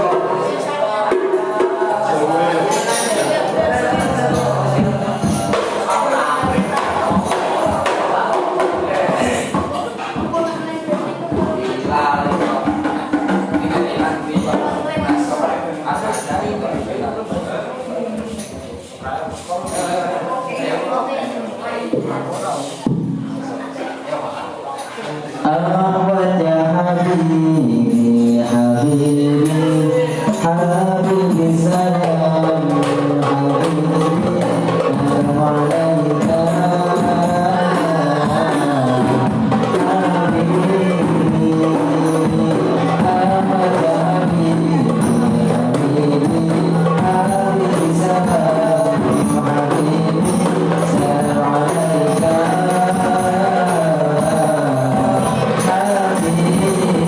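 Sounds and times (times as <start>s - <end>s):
person singing: 25.4s - 57.0s.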